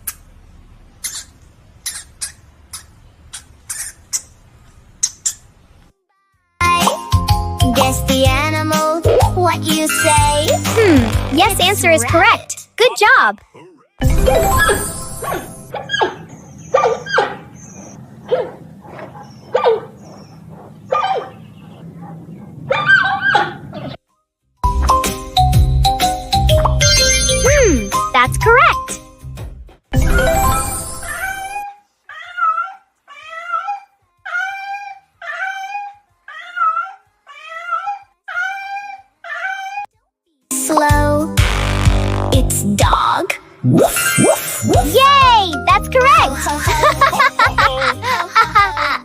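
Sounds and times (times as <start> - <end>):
dog barking: 15.7 - 23.6
animal crying: 31.2 - 39.9.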